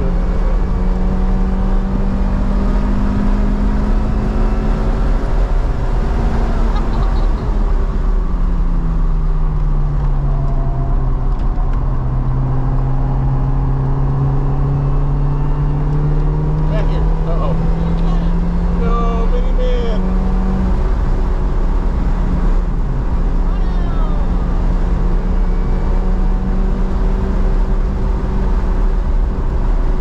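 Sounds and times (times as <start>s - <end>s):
race car engine: 0.0s - 30.0s.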